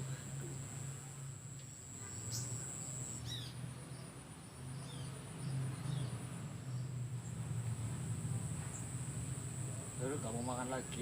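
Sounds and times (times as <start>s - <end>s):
insects trilling: 0.0s - 6.1s
bird chirps: 1.7s - 4.1s.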